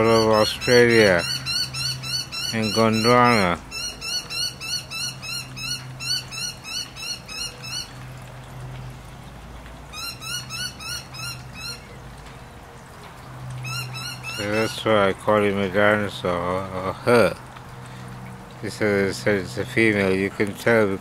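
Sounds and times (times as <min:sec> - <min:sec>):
bird chirping rapidly: 0:00.0 - 0:08.0, 0:09.9 - 0:12.0, 0:13.6 - 0:14.9.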